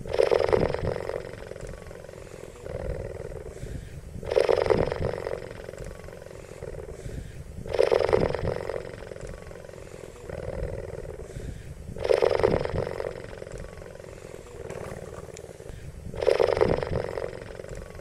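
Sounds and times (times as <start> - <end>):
cheetah purring: 0.0 - 18.0.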